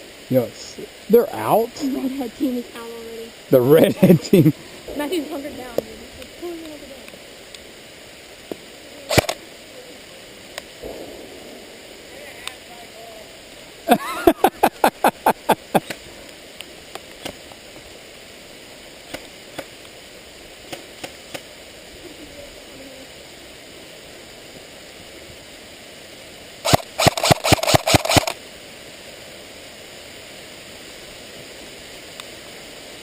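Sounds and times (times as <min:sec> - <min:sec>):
rain hiss: 0:00.0 - 0:33.0
airsoft gun shots: 0:09.1 - 0:09.4, 0:26.6 - 0:28.4.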